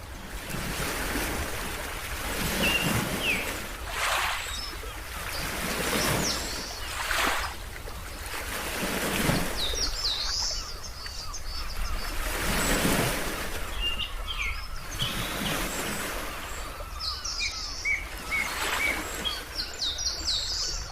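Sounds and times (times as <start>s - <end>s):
ocean waves washing in: 0.0s - 10.7s
small birds chirping: 2.5s - 8.2s, 9.2s - 13.0s, 13.6s - 20.9s.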